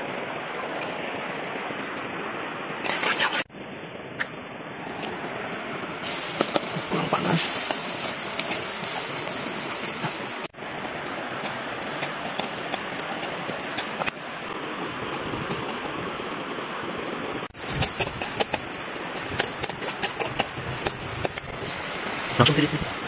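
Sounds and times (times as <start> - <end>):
paste sizzling in hot oil: 6.0 - 14.1, 17.5 - 23.0
metal spatula scraping a wok: 17.6 - 21.4.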